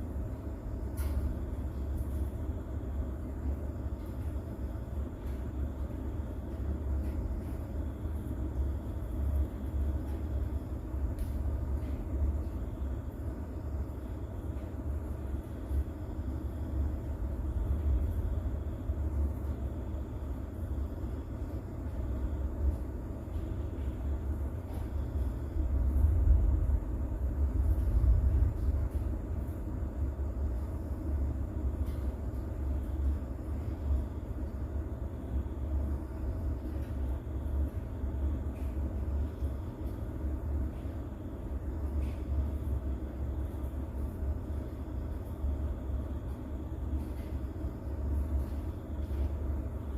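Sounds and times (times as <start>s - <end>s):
rain: 5.2s - 49.9s
distant thunder rumble: 22.0s - 32.2s.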